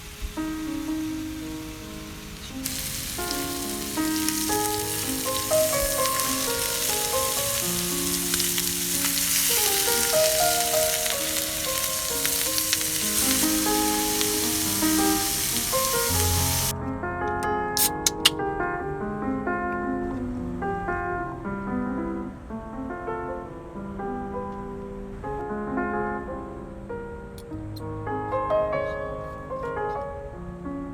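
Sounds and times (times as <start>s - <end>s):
food sizzling in a pan: 0.0s - 16.7s
soft melodic background music: 0.0s - 30.9s.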